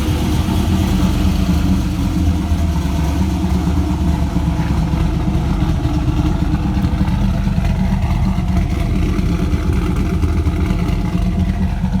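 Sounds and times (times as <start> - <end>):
car engine idling with choppy lope: 0.0 - 12.0.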